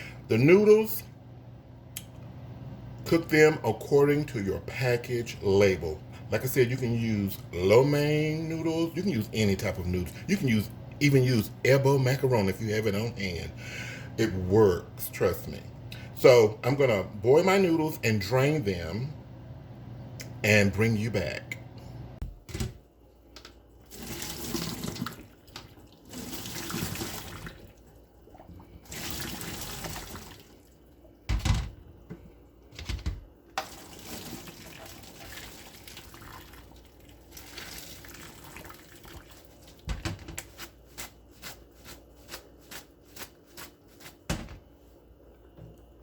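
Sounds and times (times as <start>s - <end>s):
water running into a sink: 23.8s - 30.8s, 33.6s - 40.3s.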